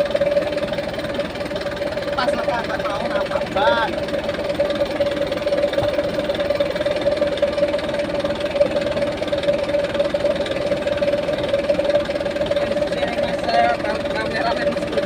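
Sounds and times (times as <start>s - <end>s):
heavy diesel engine clattering: 0.0s - 15.0s
steady whine: 0.0s - 15.0s.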